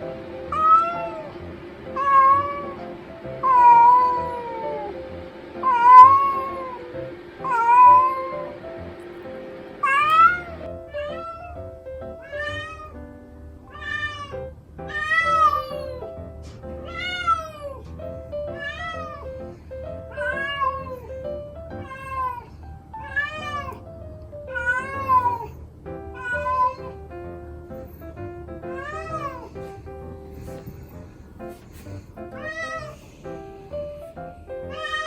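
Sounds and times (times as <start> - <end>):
cat meowing: 0.6 - 1.3, 2.0 - 2.8, 3.4 - 5.0, 5.6 - 6.8, 7.4 - 8.5, 9.8 - 11.6, 12.2 - 13.0, 13.7 - 16.1, 16.8 - 17.9, 18.5 - 19.4, 20.1 - 23.8, 24.5 - 25.6, 26.2 - 27.0, 28.6 - 29.6, 32.3 - 33.2, 34.7 - 35.0.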